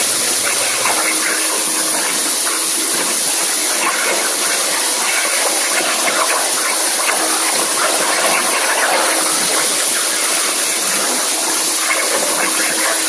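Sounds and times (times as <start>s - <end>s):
plasma arc cutting hiss: 0.0s - 2.8s.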